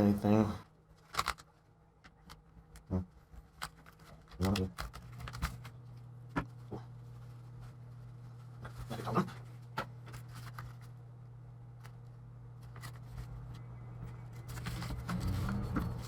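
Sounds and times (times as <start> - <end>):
low electrical hum: 0.0 - 16.0
plastic parts clicking and tapping: 1.0 - 5.7.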